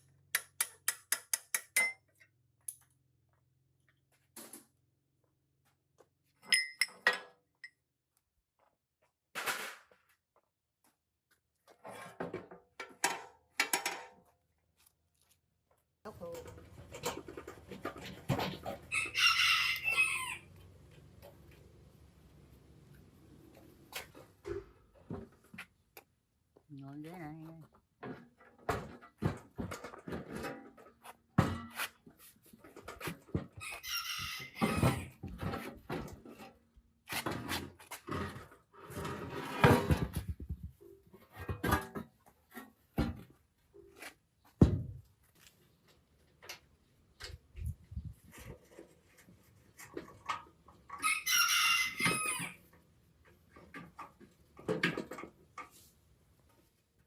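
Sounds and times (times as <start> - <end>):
rooster crowing: 18.9 - 20.5, 51.0 - 52.6.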